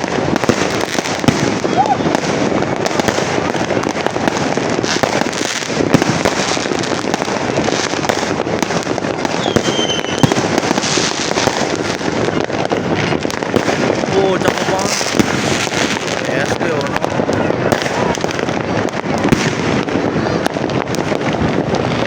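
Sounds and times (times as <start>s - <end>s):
fireworks crackling and popping: 0.0s - 22.0s
high firework whistle: 0.4s - 3.4s, 9.2s - 11.2s.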